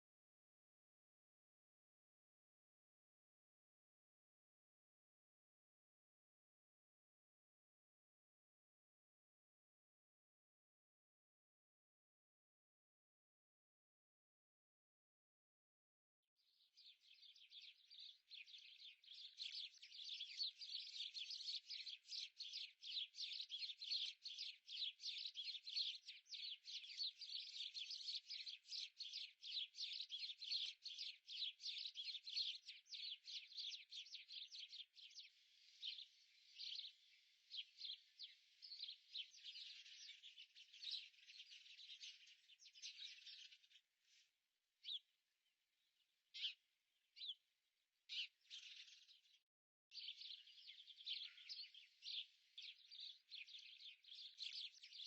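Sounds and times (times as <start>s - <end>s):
small birds chirping: 16.4s - 45.2s, 45.8s - 55.0s.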